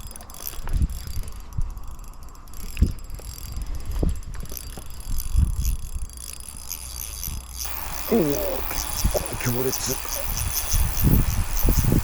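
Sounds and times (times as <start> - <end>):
spinning reel cranking: 0.0 - 12.0.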